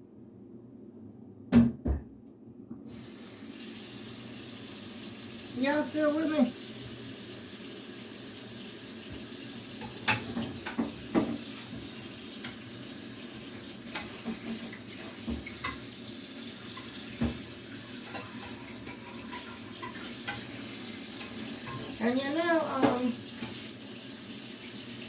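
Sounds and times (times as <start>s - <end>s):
tap running into sink: 9.0s - 16.0s, 16.6s - 23.8s
dishes knocking and clinking: 9.8s - 12.6s, 13.9s - 15.9s, 16.7s - 22.0s, 22.7s - 23.6s.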